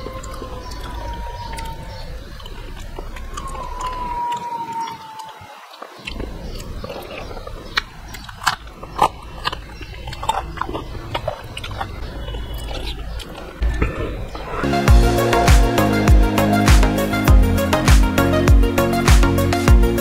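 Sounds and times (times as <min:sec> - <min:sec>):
man chewing with wet mouth smacks: 0:00.0 - 0:14.0.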